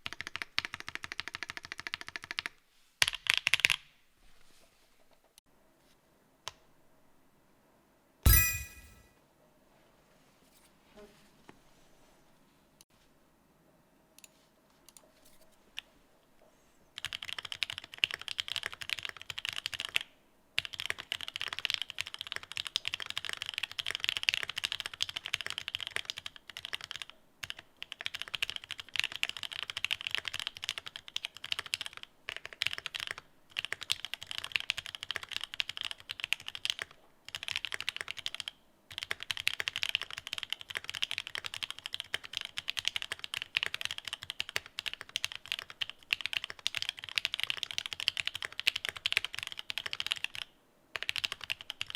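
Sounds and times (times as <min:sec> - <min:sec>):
mechanical keyboard typing: 0:00.0 - 0:03.8, 0:17.0 - 0:51.9.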